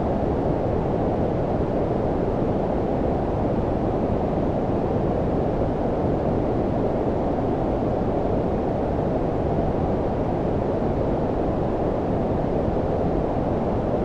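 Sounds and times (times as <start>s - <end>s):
low-frequency white noise: 0.0s - 14.0s.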